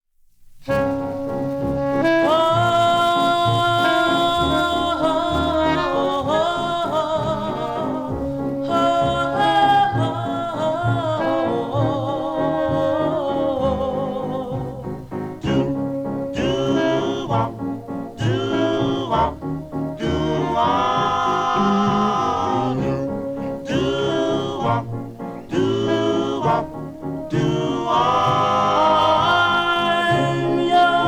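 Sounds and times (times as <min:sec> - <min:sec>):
doo-wop ballad from a record: 0:00.7 - 0:31.0.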